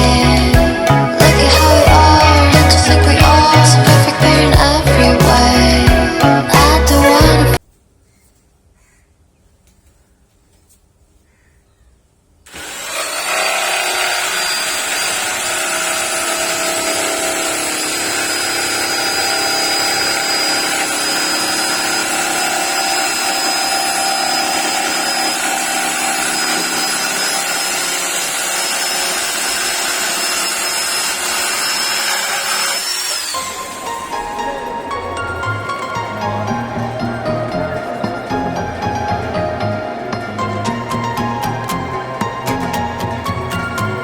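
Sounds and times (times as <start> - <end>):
electric jigsaw whine: 12.5 - 34.6.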